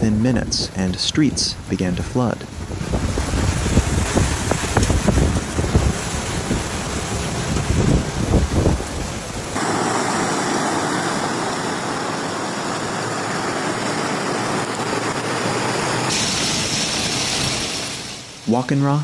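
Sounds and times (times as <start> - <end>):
wind buffeting microphone: 2.5 - 17.2
torrential rain hissing: 9.0 - 18.5.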